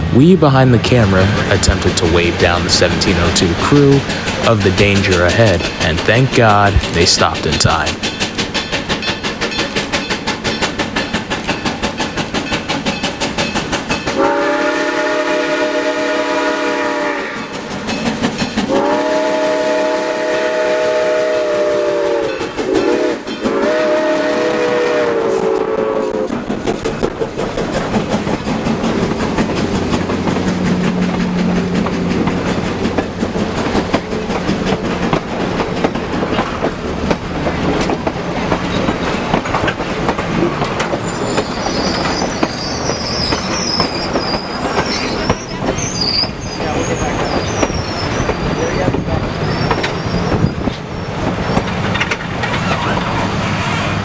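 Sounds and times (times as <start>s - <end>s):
train running: 0.0s - 54.0s
steam locomotive whistle blasts: 14.2s - 17.5s, 18.7s - 26.3s.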